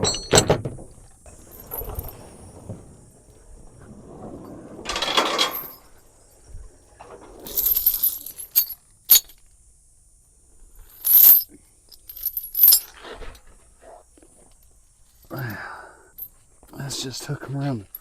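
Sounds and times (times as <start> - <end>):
steel chain rattling: 0.0 - 0.6, 1.4 - 2.2, 4.9 - 6.0, 7.3 - 9.5, 10.8 - 13.0, 17.7 - 18.0
sharp metal clinks: 7.5 - 9.4, 10.9 - 12.9.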